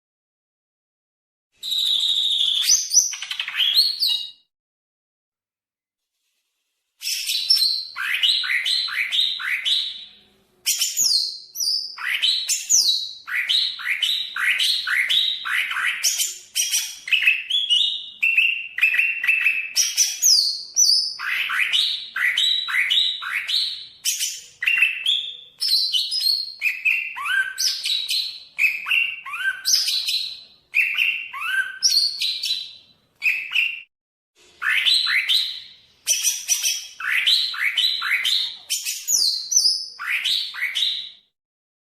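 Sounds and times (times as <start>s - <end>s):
bird singing fast varied song: 7.0s - 33.9s, 34.6s - 41.2s.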